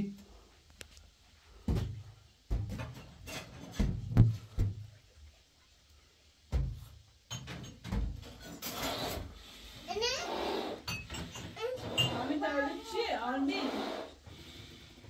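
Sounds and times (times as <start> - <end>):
irregular knocks and thumps: 1.6 - 5.0, 6.5 - 8.4.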